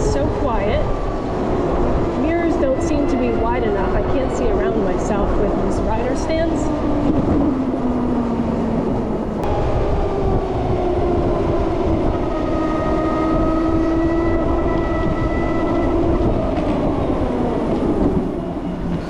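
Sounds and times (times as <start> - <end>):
road rumble: 0.0 - 19.0
wind noise: 0.0 - 19.0.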